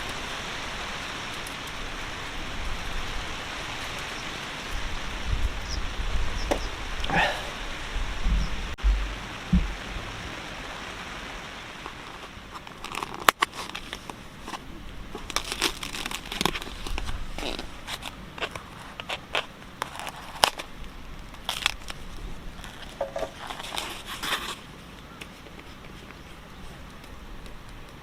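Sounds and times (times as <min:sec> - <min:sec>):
rain hiss: 0:00.0 - 0:28.0
crinkling and clicking: 0:11.8 - 0:28.0.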